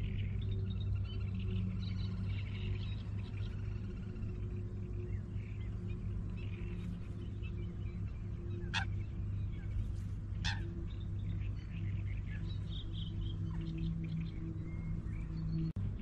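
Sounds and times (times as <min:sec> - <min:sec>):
small birds chirping: 0:00.0 - 0:16.0
steady low hum: 0:00.0 - 0:16.0
sharp quick bird calls: 0:10.4 - 0:10.7.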